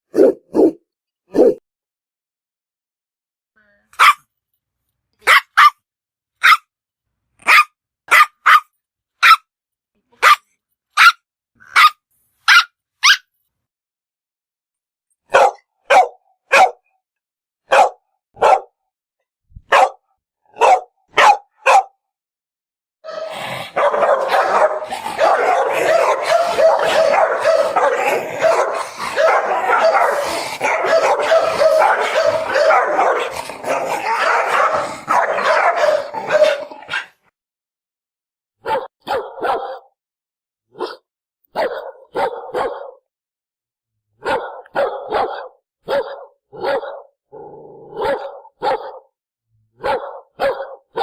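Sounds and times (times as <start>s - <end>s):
dog barking: 0.1s - 1.6s, 4.0s - 4.2s, 5.2s - 5.8s, 6.4s - 6.7s, 7.4s - 9.5s, 10.2s - 13.3s, 15.3s - 16.9s, 17.6s - 18.8s, 19.6s - 22.0s, 23.0s - 37.3s, 38.6s - 40.0s, 40.7s - 43.1s, 44.2s - 47.2s, 47.9s - 49.2s, 49.8s - 51.0s.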